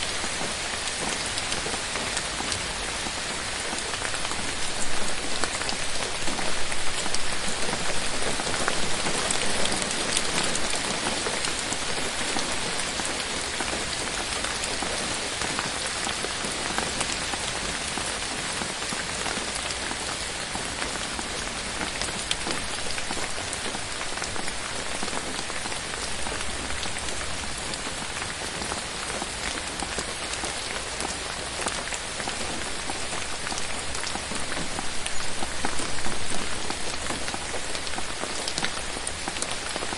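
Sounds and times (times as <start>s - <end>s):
rain falling on foliage: 0.0s - 39.9s.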